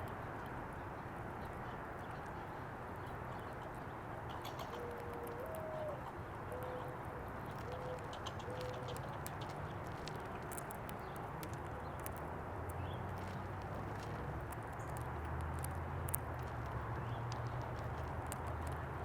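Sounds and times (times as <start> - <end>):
steady outdoor hiss: 0.0 - 19.0
mourning dove cooing: 4.4 - 9.0.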